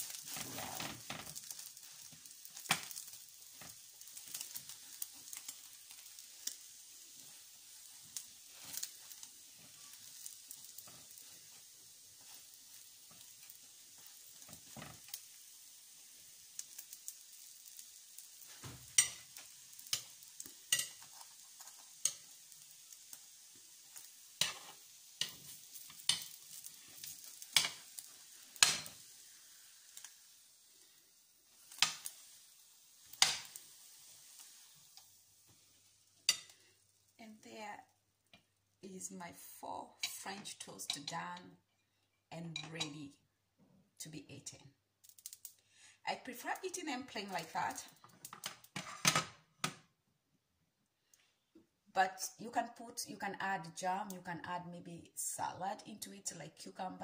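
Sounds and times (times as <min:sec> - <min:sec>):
food frying in oil: 0:00.0 - 0:38.8, 0:44.4 - 0:49.4.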